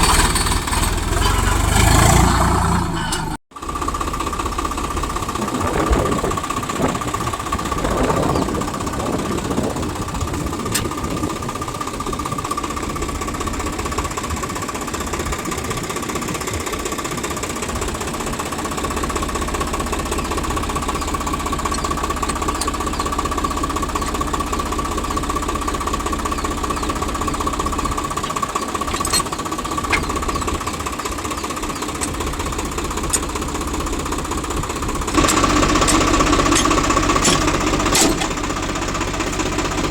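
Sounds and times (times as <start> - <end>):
diesel engine knocking clatter: 0.0 - 39.9.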